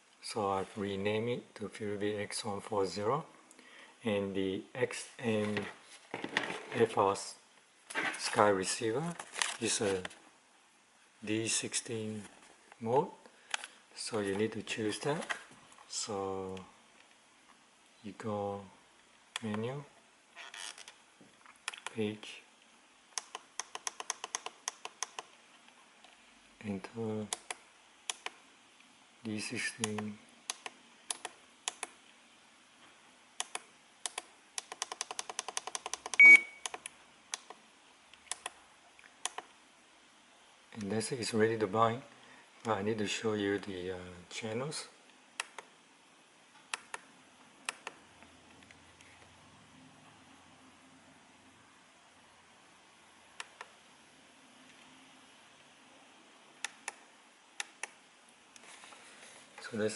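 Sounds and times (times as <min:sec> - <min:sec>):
faint hiss: 0:00.0 - 0:59.9
short high beep: 0:36.2 - 0:36.6.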